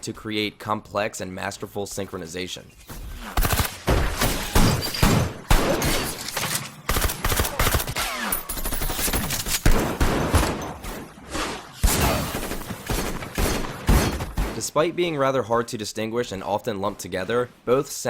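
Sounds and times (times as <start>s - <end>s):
gunshots in bursts: 3.0s - 14.9s.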